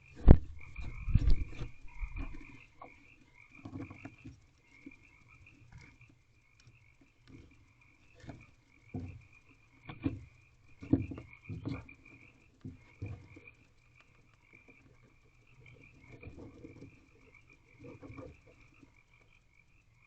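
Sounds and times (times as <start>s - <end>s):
owl thumping and scraping: 0.1s - 3.0s, 7.2s - 13.5s.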